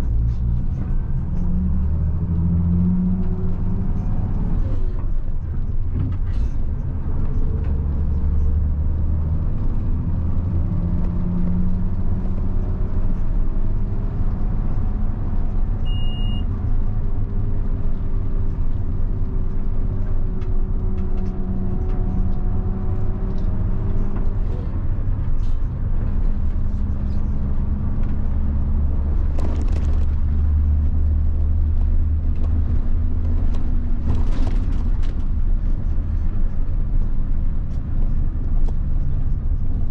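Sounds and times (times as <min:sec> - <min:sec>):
bus diesel engine rumbling: 0:00.0 - 0:39.9
high beep: 0:15.9 - 0:16.5.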